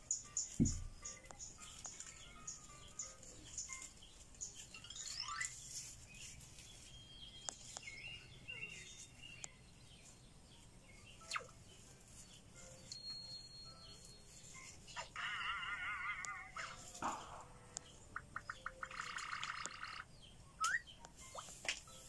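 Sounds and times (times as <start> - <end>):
faint bird chirps and whistles: 0.1 - 9.6, 10.6 - 15.2, 17.8 - 22.0
loud falling bird call: 15.0 - 17.3.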